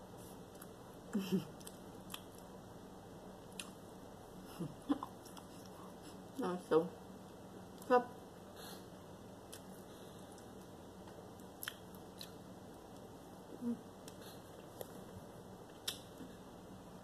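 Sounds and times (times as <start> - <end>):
person chewing: 1.5 - 2.5, 11.4 - 13.0
soft mouth clicks: 11.6 - 12.4.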